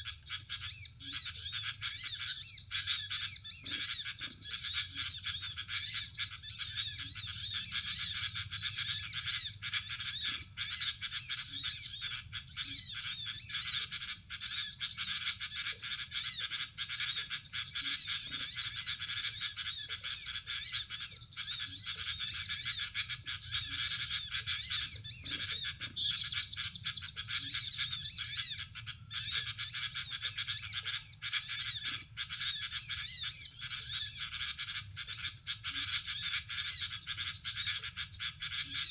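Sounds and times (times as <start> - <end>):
bird trill: 0.0 - 38.9
small birds chirping: 0.0 - 38.9.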